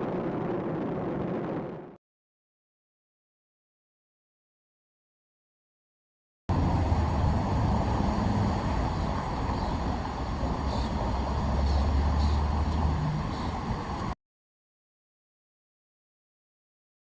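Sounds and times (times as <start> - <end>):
rocket launch roar: 0.0 - 2.0.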